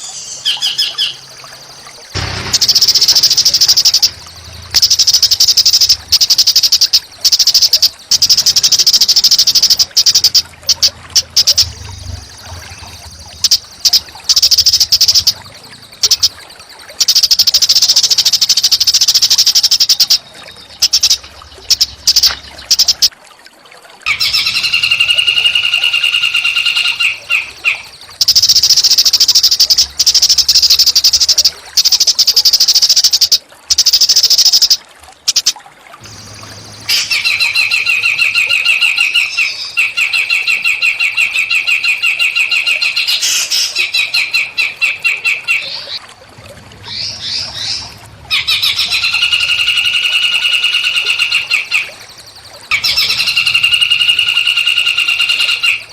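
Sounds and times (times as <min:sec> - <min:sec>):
songbird buzzing trills: 0:00.0 - 0:23.1, 0:24.1 - 0:42.2
two-pitch bird call: 0:00.0 - 0:23.1, 0:24.1 - 0:46.0, 0:46.8 - 0:55.9.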